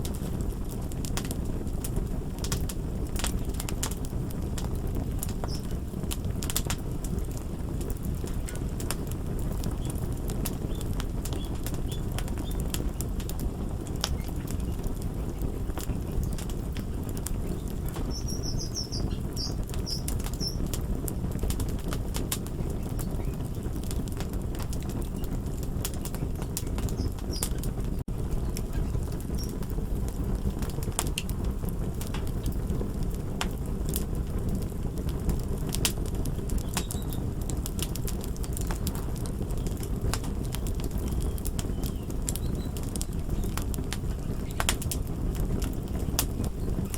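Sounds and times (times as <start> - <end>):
fire crackling and popping: 0.0 - 46.9.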